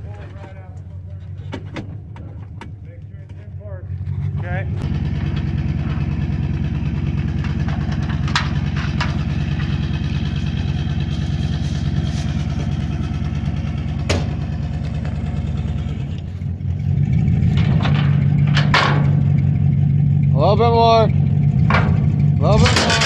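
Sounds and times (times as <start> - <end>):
truck engine idling: 0.0 - 23.0
sharp knocks: 14.0 - 14.4, 21.6 - 23.0.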